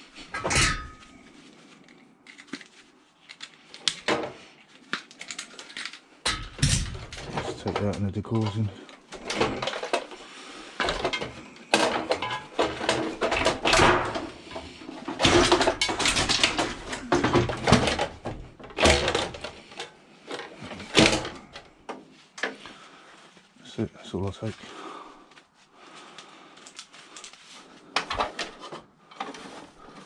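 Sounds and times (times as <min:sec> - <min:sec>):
scrap knocking and clattering: 0:00.2 - 0:01.2, 0:06.3 - 0:22.6.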